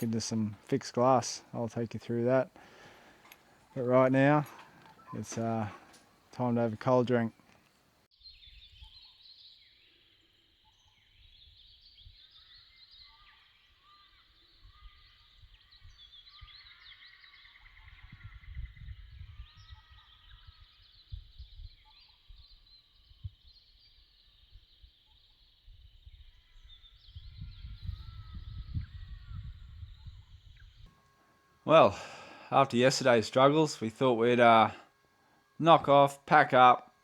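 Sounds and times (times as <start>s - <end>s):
birds calling and chirping: 0.0s - 37.0s
wind rumbling on microphone: 17.8s - 23.5s, 25.7s - 30.8s.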